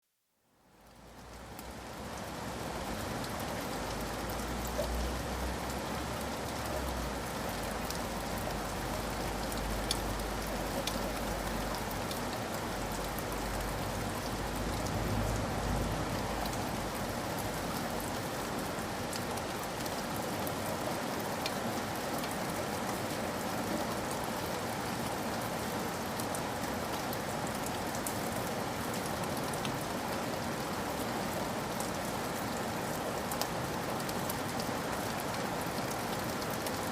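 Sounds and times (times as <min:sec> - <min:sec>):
steady rain falling: 0:00.1 - 0:36.9.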